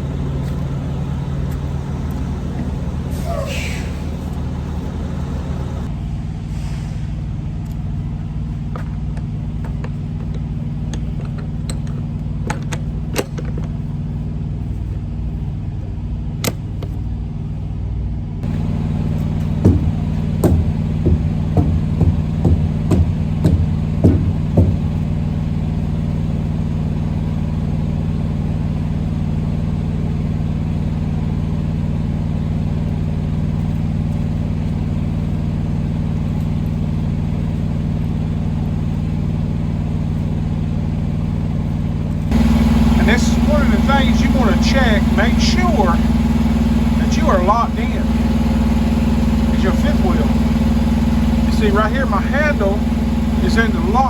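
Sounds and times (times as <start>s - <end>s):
truck diesel engine running: 0.0s - 54.0s
sharp knocks: 19.6s - 25.0s.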